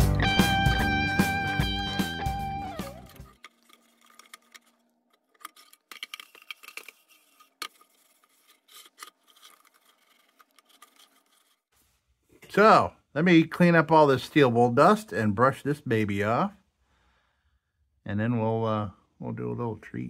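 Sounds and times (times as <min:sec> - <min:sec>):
guitar music: 0:00.0 - 0:03.4.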